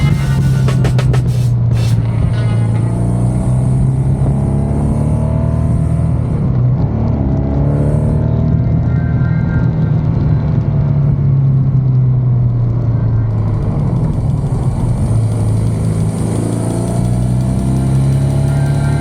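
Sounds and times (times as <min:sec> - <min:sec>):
motorcycle engine running: 0:00.0 - 0:07.5, 0:12.0 - 0:19.0.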